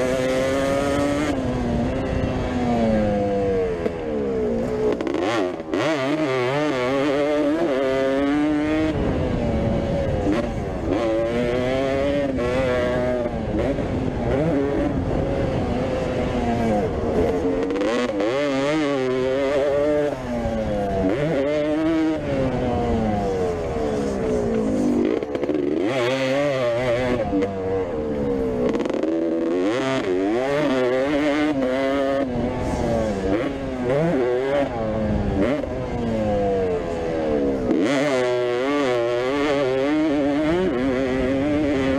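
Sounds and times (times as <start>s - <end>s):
motocross bike engines revving: 0.0s - 41.9s.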